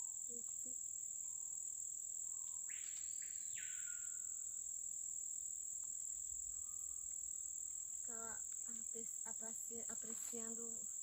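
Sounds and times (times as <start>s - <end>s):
high-pitched insect chorus: 0.0s - 11.0s
bird loud whistled call: 2.7s - 4.2s.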